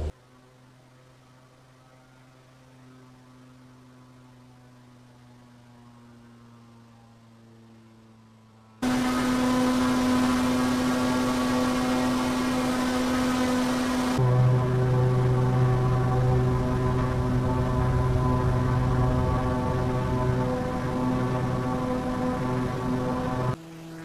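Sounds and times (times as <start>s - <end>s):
turboprop engine drone: 0.0s - 24.0s
radio transmission with static: 8.8s - 14.3s.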